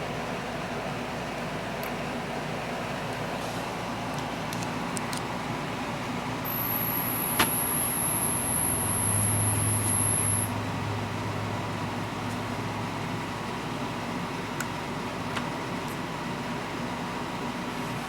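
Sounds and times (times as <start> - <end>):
high-pitched whine: 6.4 - 11.7
low motor hum: 6.4 - 13.6.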